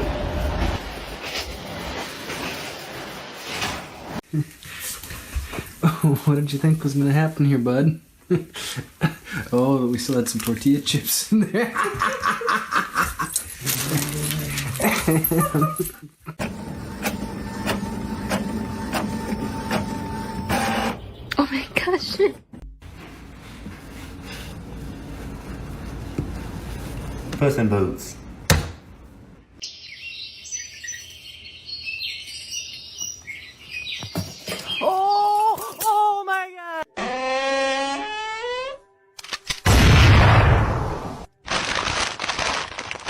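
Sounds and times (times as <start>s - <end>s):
small birds chirping: 29.6s - 35.4s.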